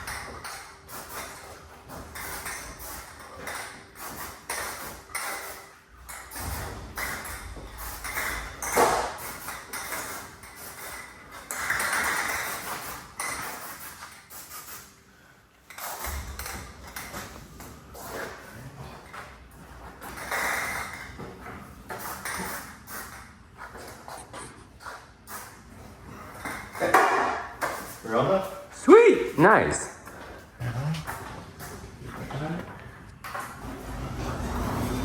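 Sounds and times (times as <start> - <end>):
garage door metallic clanks and rattles: 0.0 - 14.6, 33.2 - 35.0
garage door opener rumble: 33.4 - 35.0.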